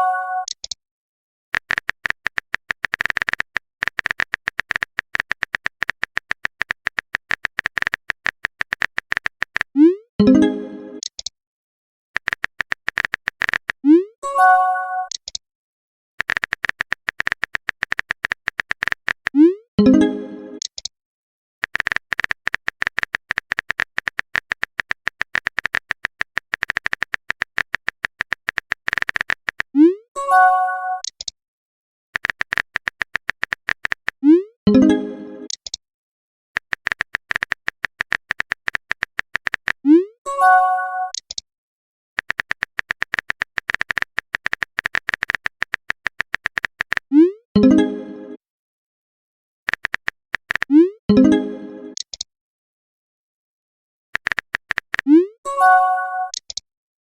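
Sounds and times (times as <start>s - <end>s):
chat message chime: 0.0s - 0.5s, 55.5s - 56.3s
keyboard typing clicks: 0.0s - 0.8s, 1.6s - 11.3s, 12.2s - 13.9s, 15.0s - 15.4s, 16.2s - 20.9s, 21.6s - 30.0s, 31.0s - 31.3s, 32.2s - 35.8s, 36.6s - 40.1s, 41.0s - 41.4s, 42.2s - 48.4s, 49.7s - 52.3s, 54.2s - 56.6s.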